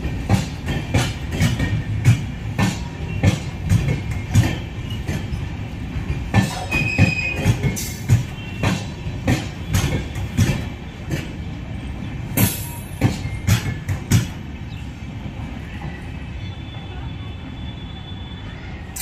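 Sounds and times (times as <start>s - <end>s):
train wheels clacking over rail joints: 0.0s - 14.6s
train rumble: 0.0s - 19.0s.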